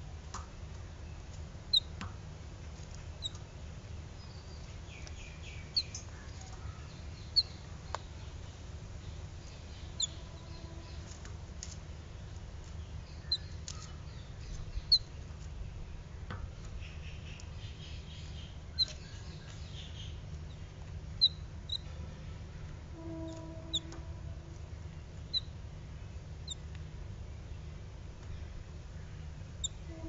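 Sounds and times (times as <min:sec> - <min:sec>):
low background hum: 0:00.0 - 0:30.0
bird chirping: 0:04.2 - 0:11.2, 0:12.8 - 0:15.2, 0:16.6 - 0:22.0, 0:23.0 - 0:24.0, 0:24.9 - 0:26.6, 0:28.2 - 0:30.0.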